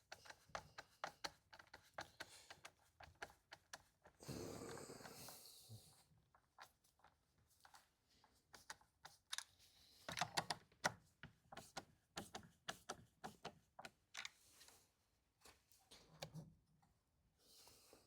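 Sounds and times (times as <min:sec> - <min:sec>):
clicks of parts being handled: 0:13.8 - 0:14.4.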